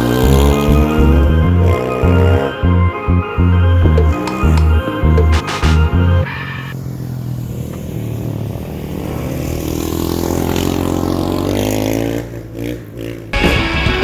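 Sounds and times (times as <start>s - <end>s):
dirt bike engine accelerating: 0.0s - 14.0s
music: 0.4s - 6.6s, 13.4s - 14.0s.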